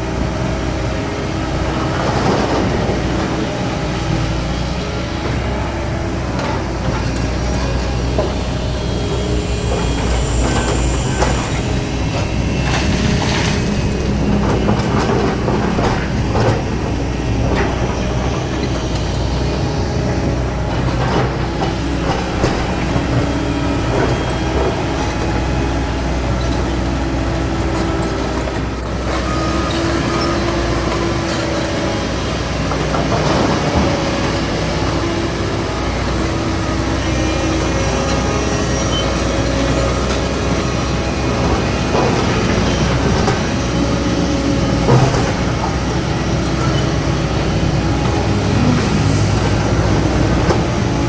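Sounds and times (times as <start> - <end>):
excavator diesel engine running: 0.0 - 51.0
hydraulic whine: 0.0 - 51.0
machine clanks and knocks: 9.6 - 25.5, 38.9 - 50.9.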